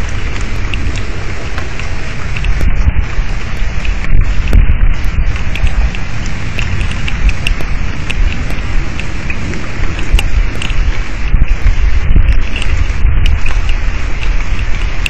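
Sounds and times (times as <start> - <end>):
heavy rain pouring: 0.0 - 15.0
low rumble: 0.0 - 15.0
raindrops ticking: 0.0 - 15.0.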